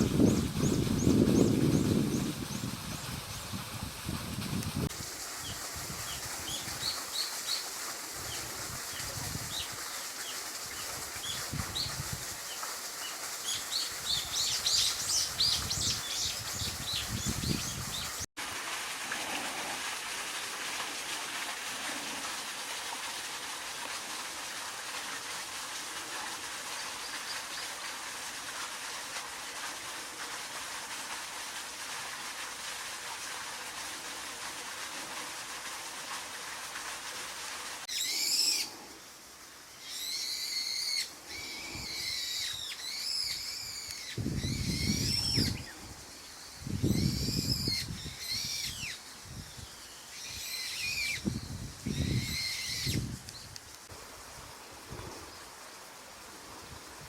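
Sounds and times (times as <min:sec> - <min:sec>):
steady outdoor hiss: 0:00.0 - 0:57.0
bird calling in arched notes: 0:37.9 - 0:38.8, 0:39.7 - 0:45.8, 0:50.0 - 0:53.0.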